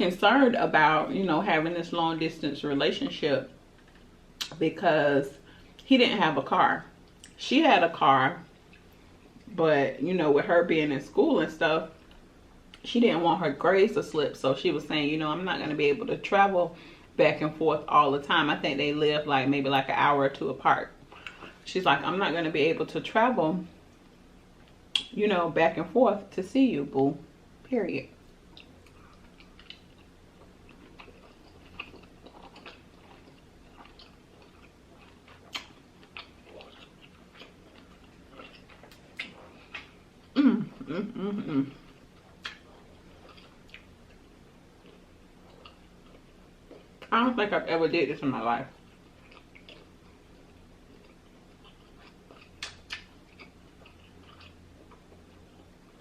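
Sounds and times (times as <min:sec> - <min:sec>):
wet mouth chewing clicks: 0:24.7 - 0:25.1, 0:28.5 - 0:39.9, 0:42.3 - 0:42.7, 0:49.2 - 0:55.0.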